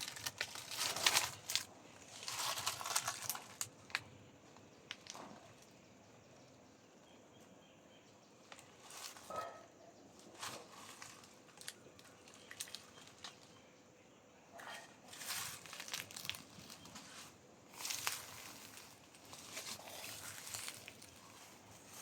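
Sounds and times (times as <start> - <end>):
dry leaves crackling and rustling: 0.0 - 4.1, 4.9 - 5.5, 8.5 - 9.6, 10.2 - 13.6, 15.0 - 22.0.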